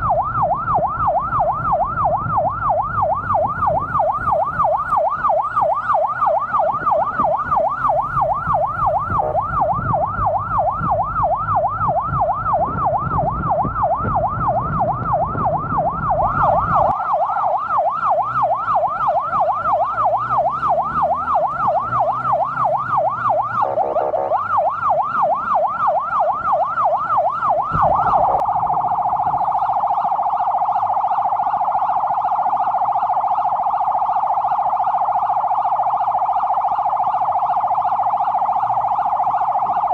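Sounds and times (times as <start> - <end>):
emergency siren: 0.0 - 39.9
low engine rumble: 18.0 - 31.4.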